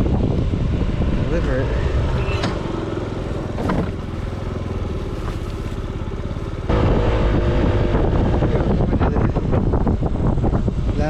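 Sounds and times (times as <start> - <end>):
motor scooter engine: 1.9 - 8.4.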